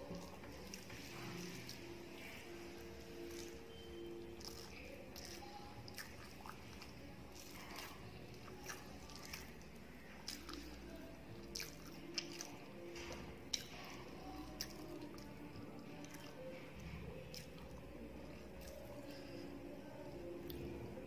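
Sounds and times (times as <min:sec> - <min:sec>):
close chewing of food: 0:00.0 - 0:21.0
wet lip and tongue clicks: 0:11.5 - 0:12.6.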